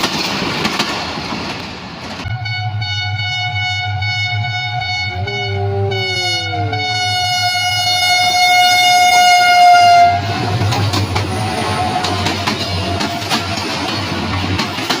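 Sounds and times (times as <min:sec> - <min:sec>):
train passing with clatter: 0:00.0 - 0:15.0
train horn blast: 0:02.3 - 0:10.6.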